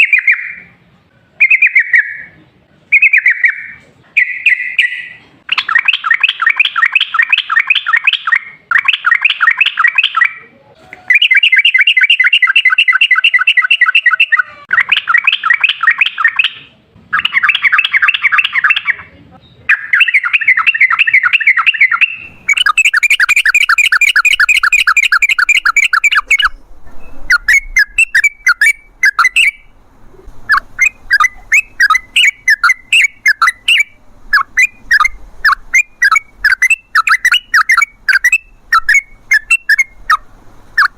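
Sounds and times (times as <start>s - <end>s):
bird chirps: 0.0s - 0.7s, 1.4s - 10.5s, 11.1s - 40.9s
bulbul singing chattering runs: 19.9s - 40.9s.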